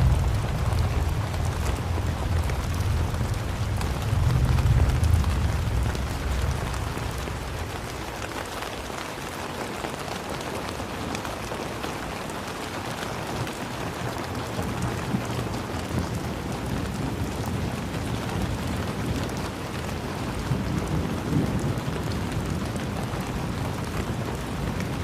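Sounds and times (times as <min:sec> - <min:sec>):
deep low rumble: 0:00.0 - 0:08.4
rain falling: 0:00.0 - 0:25.0.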